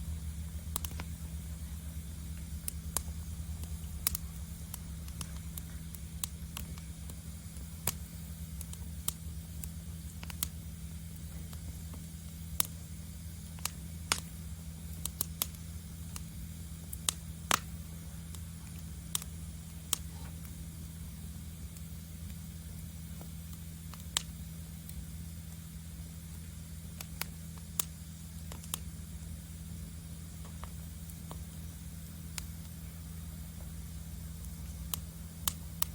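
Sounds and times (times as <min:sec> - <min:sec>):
wood fire crackling and popping: 0:00.0 - 0:35.9.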